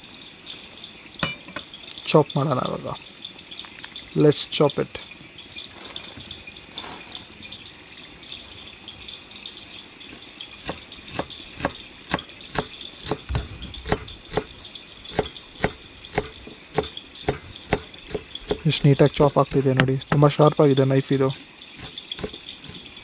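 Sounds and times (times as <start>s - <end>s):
crickets chirping: 0.0s - 23.0s
knife chopping herbs: 10.1s - 14.5s, 15.1s - 20.3s, 21.3s - 22.9s.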